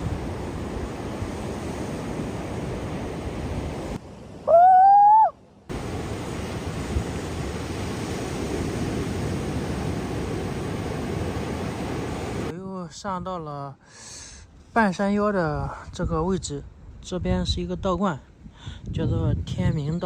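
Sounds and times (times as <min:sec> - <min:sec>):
heavy surf: 0:00.0 - 0:12.5
wind on microphone: 0:00.0 - 0:12.5, 0:15.5 - 0:20.0.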